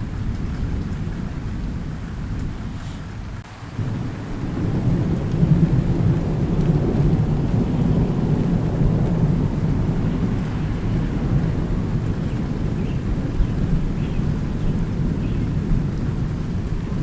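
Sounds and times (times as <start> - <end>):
rolling thunder: 0.0 - 17.0
steady rain: 0.0 - 17.0.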